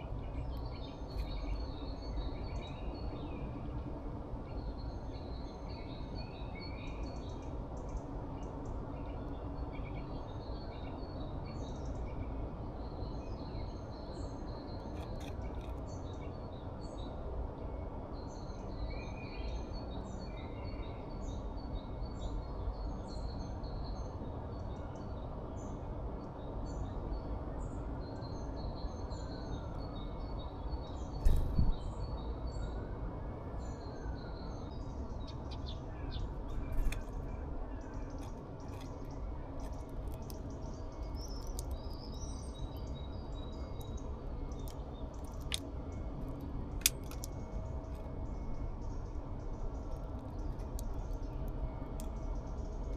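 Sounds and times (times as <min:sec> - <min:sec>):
small songbirds chirping: 0:00.0 - 0:52.9
low background rumble: 0:26.7 - 0:52.9.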